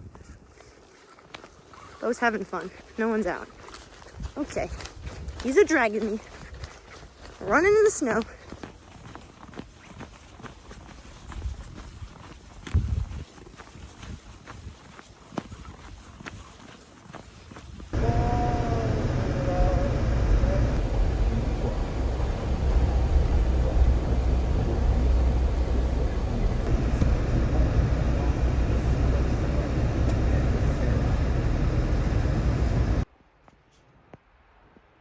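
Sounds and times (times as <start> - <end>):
running footsteps in snow: 0.1 - 31.8
wind buffeting microphone: 4.1 - 5.6, 11.3 - 13.3, 17.7 - 33.0
low rumble: 18.0 - 33.0.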